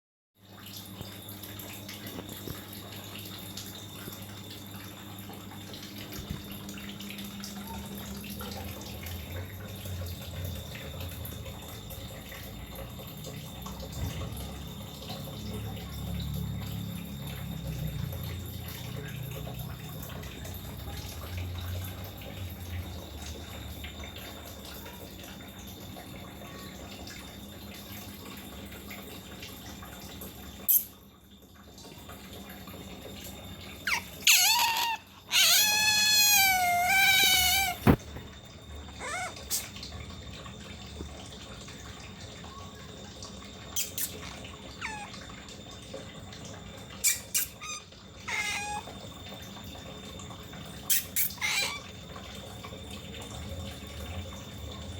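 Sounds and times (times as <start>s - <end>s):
steady hiss of running water: 0.7s - 31.1s, 32.2s - 54.9s
otter chirping calls: 33.9s - 38.0s, 39.0s - 39.7s, 43.8s - 45.1s, 47.0s - 48.9s, 50.9s - 51.8s.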